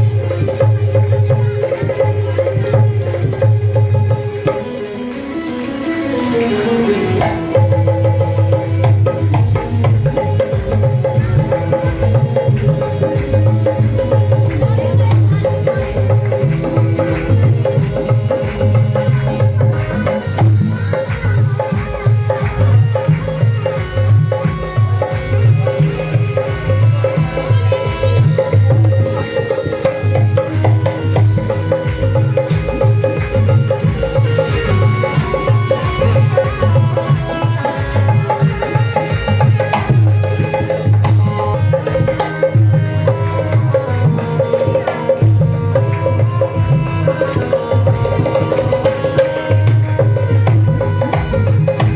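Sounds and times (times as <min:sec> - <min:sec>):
folk dance music: 0:00.0 - 0:51.9.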